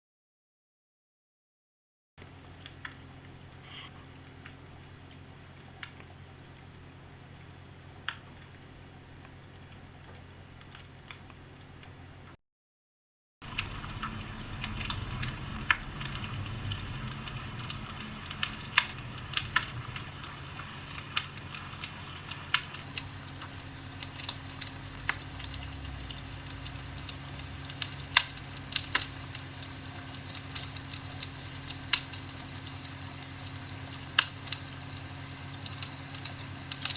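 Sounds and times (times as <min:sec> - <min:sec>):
log fire crackling and popping: 0:02.2 - 0:12.3, 0:13.4 - 0:36.9
steady low hum: 0:02.2 - 0:12.4, 0:13.4 - 0:36.9.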